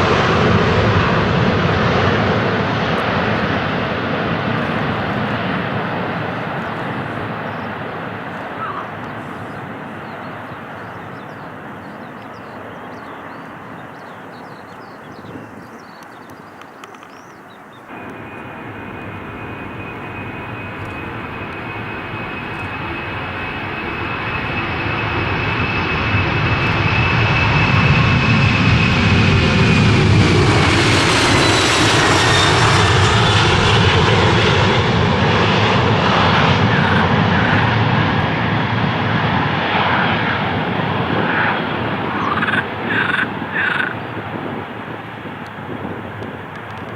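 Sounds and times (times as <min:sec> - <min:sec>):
jet airliner passing: 0:00.0 - 0:46.9
high engine whine dropping in pitch: 0:17.9 - 0:44.0.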